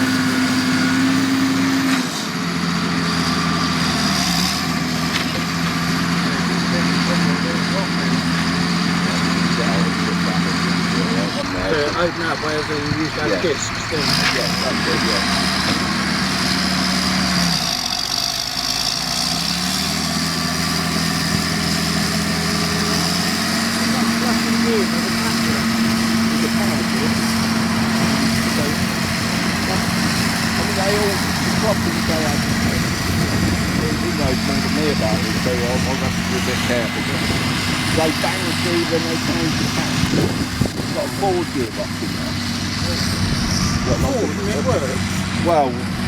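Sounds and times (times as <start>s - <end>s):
crawler tractor diesel engine: 0.0s - 46.0s.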